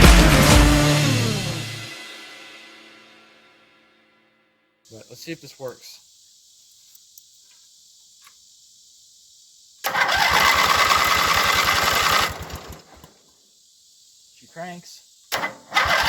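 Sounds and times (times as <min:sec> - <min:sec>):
electric starter cranking engine: 0:09.8 - 0:13.2, 0:15.3 - 0:16.0.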